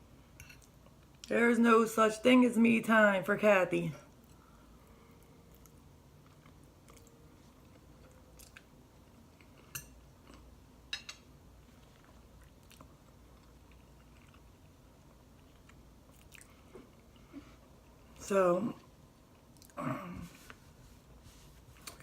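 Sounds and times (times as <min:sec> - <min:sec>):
chewing spaghetti: 0:05.5 - 0:10.5, 0:11.6 - 0:18.2.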